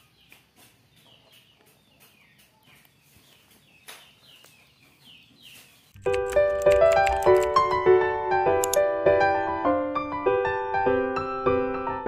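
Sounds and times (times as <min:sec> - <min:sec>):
sharp click: 0:08.6 - 0:08.8.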